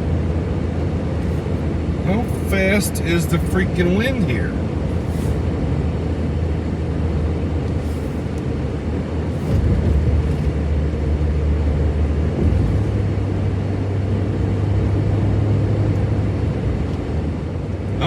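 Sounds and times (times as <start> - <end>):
vehicle interior road noise: 0.0 - 18.0.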